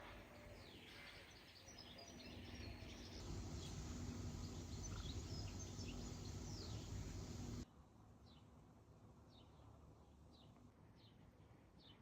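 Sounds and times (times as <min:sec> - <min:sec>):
small birds chirping: 0:00.4 - 0:07.6
low outdoor rumble: 0:03.2 - 0:07.6.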